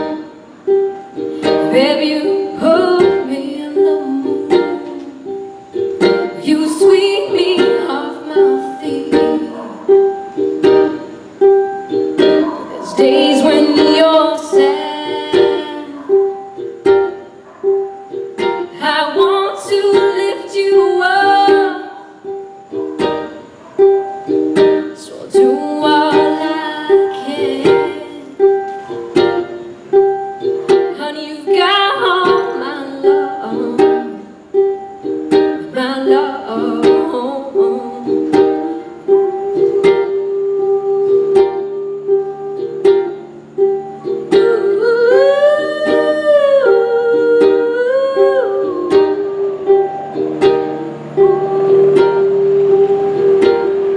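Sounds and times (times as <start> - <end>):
ukulele strumming: 0.0 - 53.9
wordless vocal melody: 0.0 - 53.9.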